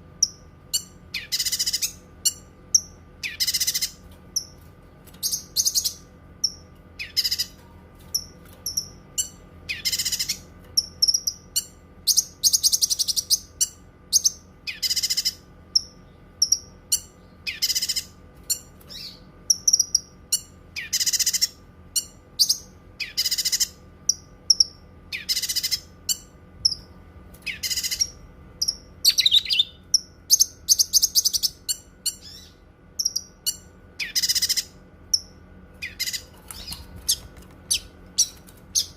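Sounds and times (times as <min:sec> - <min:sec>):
bird singing high phrases: 0:00.2 - 0:04.5, 0:05.2 - 0:07.6, 0:08.2 - 0:38.9
bird chips: 0:35.8 - 0:38.9.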